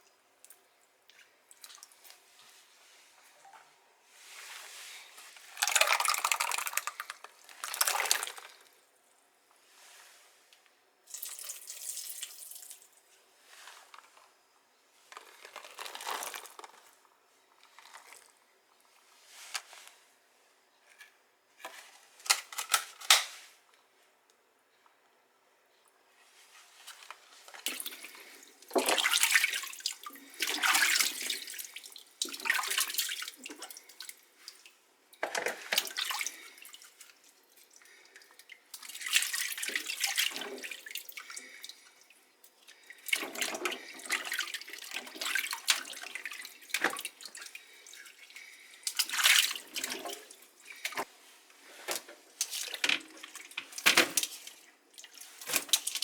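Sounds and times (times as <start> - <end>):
water splashing in a sink: 0.5 - 2.2, 5.4 - 8.7, 27.6 - 51.1, 52.4 - 56.0.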